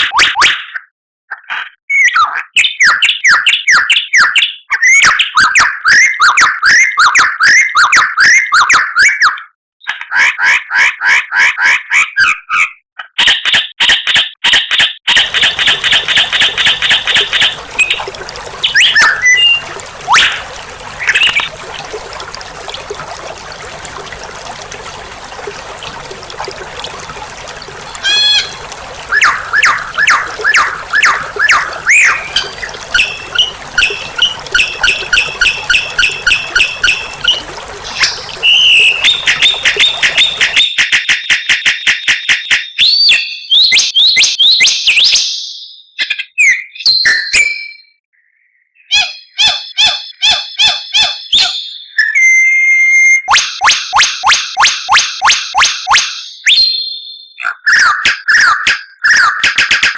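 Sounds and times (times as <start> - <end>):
bird whistles: 18.6 - 20.4.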